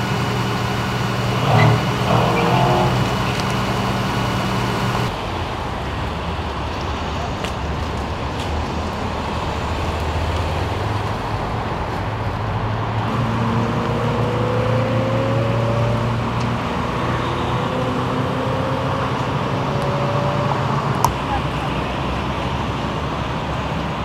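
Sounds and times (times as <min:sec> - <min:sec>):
freeway traffic noise: 0:00.0 - 0:24.0
vehicle engines running: 0:00.0 - 0:24.0
engine note rising in pitch: 0:01.1 - 0:05.1.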